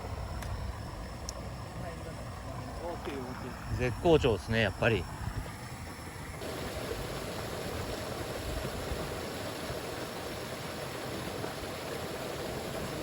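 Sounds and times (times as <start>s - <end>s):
rushing river water: 6.4s - 13.0s.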